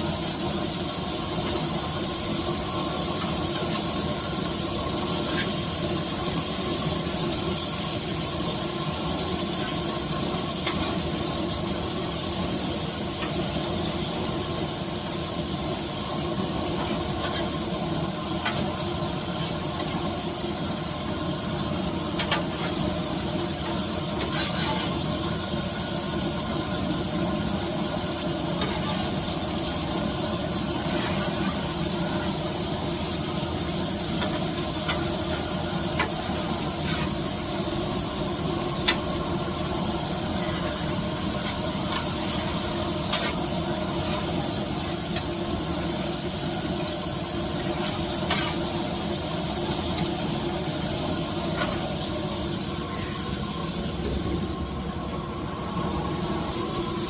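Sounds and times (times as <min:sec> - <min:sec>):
food sizzling: 0:00.0 - 0:57.0.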